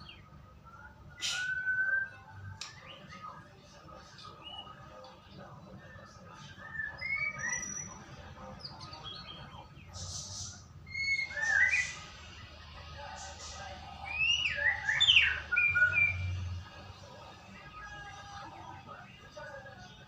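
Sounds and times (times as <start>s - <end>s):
harsh hissing bird notes: 1.1s - 1.7s, 9.8s - 16.6s
bird whistled song: 1.1s - 3.2s, 6.4s - 8.0s, 8.6s - 12.2s, 14.0s - 16.5s.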